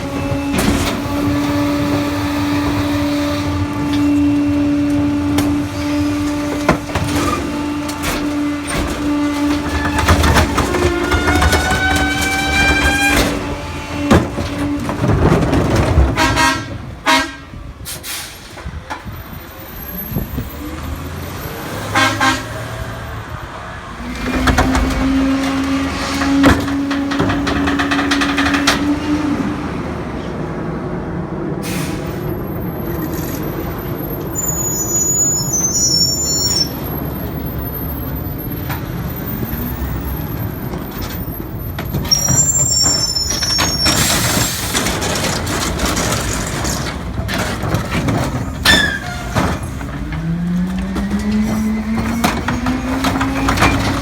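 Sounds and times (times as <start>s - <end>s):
garbage truck diesel rumble: 0.0s - 54.0s
air brakes hissing: 17.8s - 18.8s, 31.6s - 32.4s.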